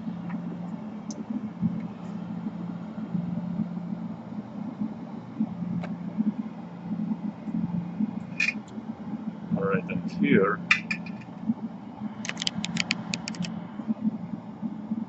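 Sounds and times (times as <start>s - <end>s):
low mechanical hum: 0.0s - 15.0s
faint clicks: 12.2s - 13.5s.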